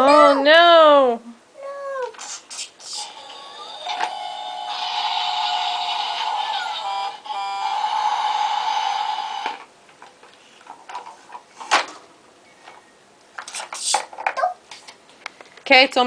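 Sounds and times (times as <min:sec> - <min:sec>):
toy truck whirring: 0:02.3 - 0:09.6.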